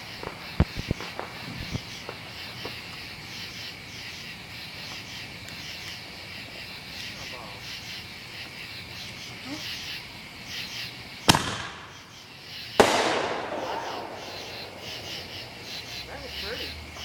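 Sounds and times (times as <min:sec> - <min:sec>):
firework bangs: 0:00.0 - 0:02.9, 0:11.2 - 0:12.2, 0:12.8 - 0:16.7
crickets chirring: 0:00.0 - 0:17.0.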